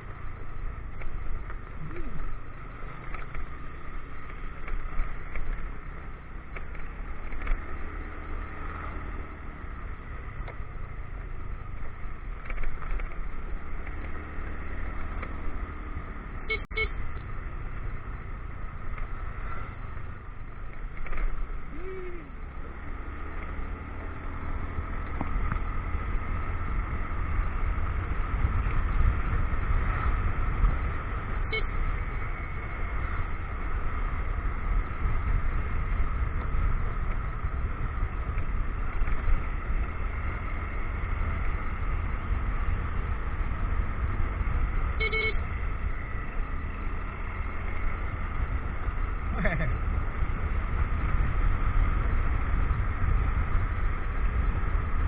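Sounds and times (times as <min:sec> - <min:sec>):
motorcycle engine running: 0:00.0 - 0:55.0
short beeps: 0:16.5 - 0:17.0, 0:45.0 - 0:45.4
wind rumble on microphone: 0:17.0 - 0:55.0.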